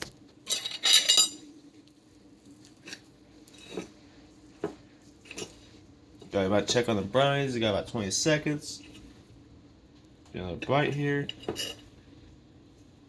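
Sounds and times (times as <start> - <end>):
cutlery clinking against plate: 0.5 - 1.4, 11.3 - 11.9.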